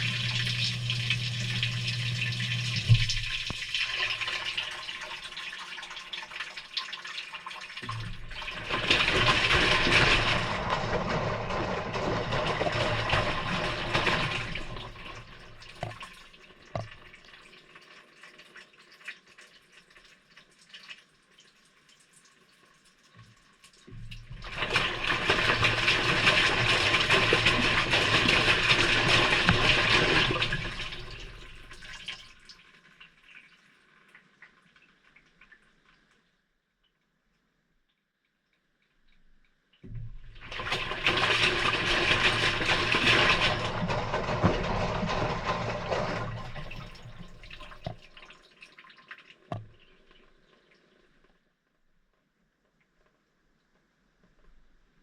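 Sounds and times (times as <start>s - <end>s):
washing machine motor humming: 0.0s - 5.2s, 7.9s - 16.2s, 24.1s - 32.0s, 39.9s - 48.1s
wet laundry tumbling: 0.0s - 5.6s, 7.9s - 17.2s, 24.1s - 32.1s, 39.9s - 48.2s
faint drips and ticks: 0.0s - 8.5s, 14.8s - 24.4s, 31.0s - 40.4s, 46.6s - 55.0s
water sloshing: 39.9s - 48.3s.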